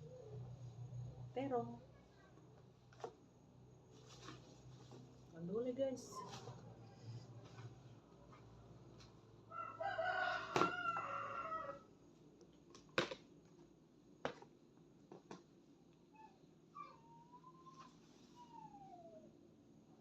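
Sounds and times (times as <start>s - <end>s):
rooster crowing: 9.5s - 11.9s.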